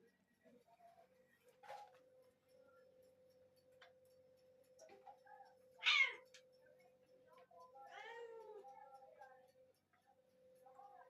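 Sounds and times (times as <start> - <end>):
kitten meowing: 5.8 - 6.2.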